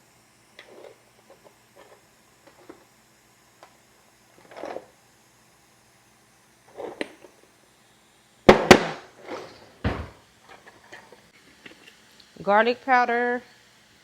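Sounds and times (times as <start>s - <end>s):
knock: 9.8s - 10.2s.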